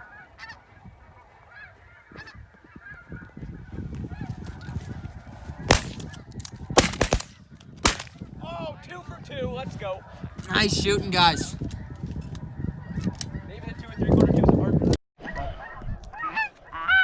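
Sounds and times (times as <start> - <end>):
geese honking: 0.0 - 4.7
shotgun blasts: 5.6 - 8.2.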